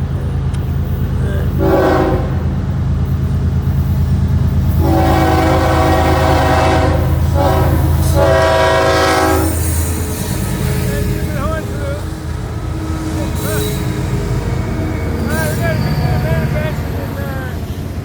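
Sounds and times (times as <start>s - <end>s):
diesel engine running: 0.0s - 18.0s
train horn chord: 1.5s - 2.6s, 4.8s - 10.4s.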